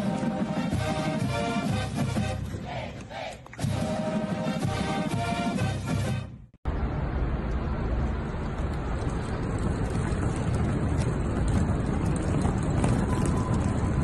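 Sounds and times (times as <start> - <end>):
trolley bag wheels rolling on concrete: 8.0 - 14.0.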